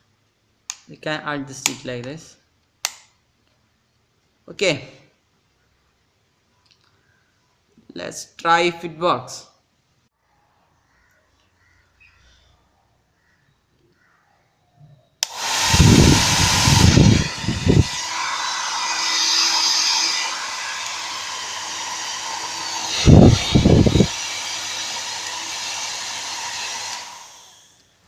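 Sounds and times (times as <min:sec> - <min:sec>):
hair dryer switch click: 0:15.2 - 0:27.1
hair dryer blowing with a whine: 0:15.2 - 0:27.9.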